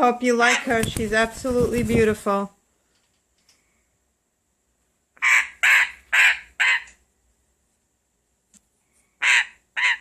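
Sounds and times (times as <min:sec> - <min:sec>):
parrot squawking: 0:00.3 - 0:00.8, 0:05.2 - 0:07.0, 0:09.2 - 0:10.0.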